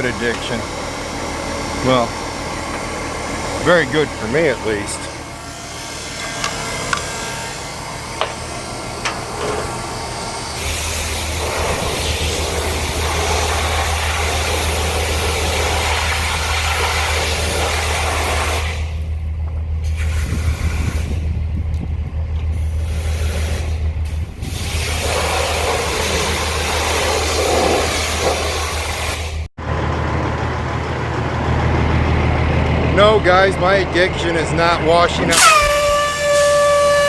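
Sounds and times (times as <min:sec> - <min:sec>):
low motor hum: 0:00.0 - 0:37.0
high-pressure water spray: 0:10.5 - 0:19.0, 0:19.8 - 0:21.2, 0:22.6 - 0:29.4.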